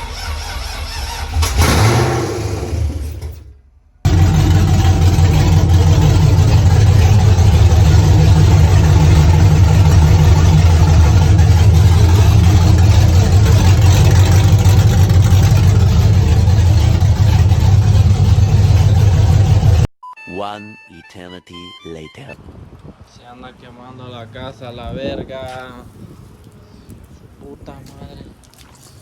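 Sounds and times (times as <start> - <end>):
truck engine running steadily: 4.1 - 19.9.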